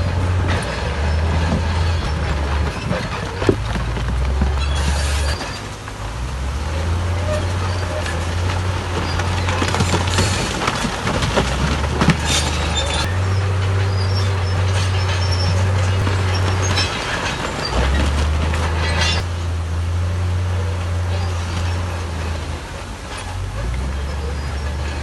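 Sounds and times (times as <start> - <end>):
bulldozer diesel engine under load: 0.0 - 25.0
steel tracks squealing and clanking: 0.0 - 25.0.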